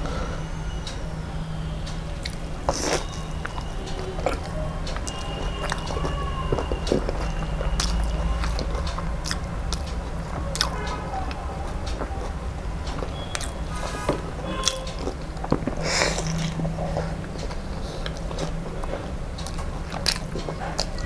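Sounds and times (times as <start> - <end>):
low steady hum: 0.0 - 21.0
mouth clicks and crackles: 1.9 - 21.0
person biting and chewing food: 2.2 - 3.6, 4.2 - 9.9, 10.5 - 10.9, 13.0 - 13.9, 14.6 - 18.6, 19.4 - 21.0.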